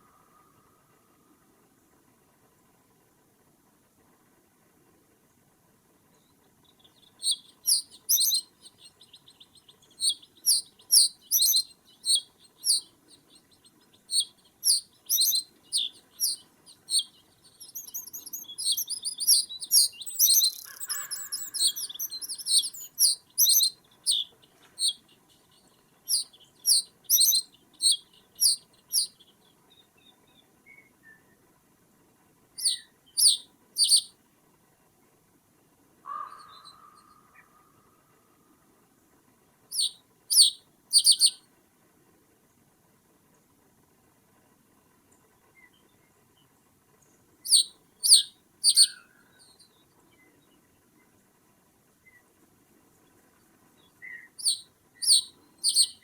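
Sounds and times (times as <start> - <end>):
birds calling high-pitched: 6.8 - 29.4, 32.6 - 34.1, 36.1 - 37.7, 39.7 - 41.4, 47.4 - 49.7, 54.0 - 56.0.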